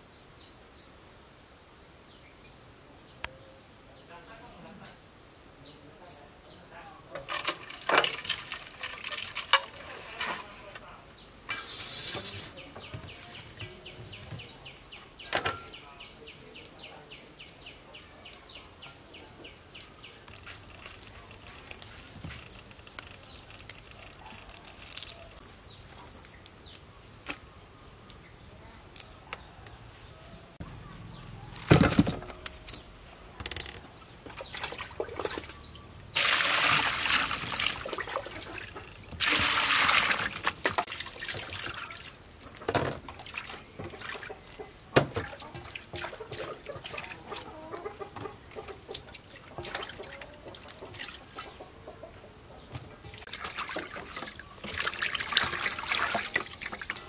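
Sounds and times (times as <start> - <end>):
bird chirping: 9.8 - 36.2.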